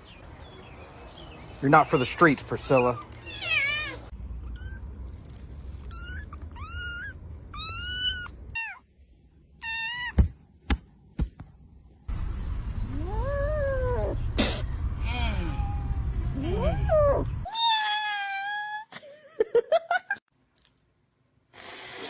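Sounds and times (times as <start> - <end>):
kitten meowing: 3.0 - 4.8, 5.8 - 8.8, 9.6 - 10.2.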